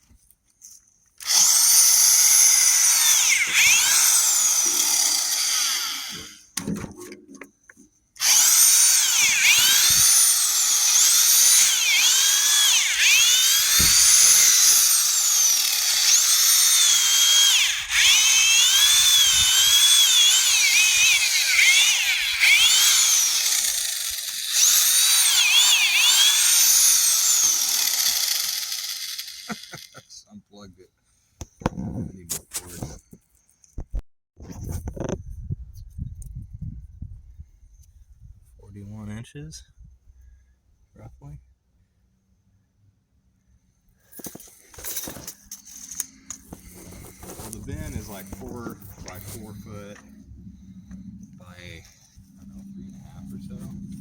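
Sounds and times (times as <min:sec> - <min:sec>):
hammer drill motor whine: 0:01.2 - 0:06.4, 0:08.2 - 0:30.0, 0:44.2 - 0:54.0.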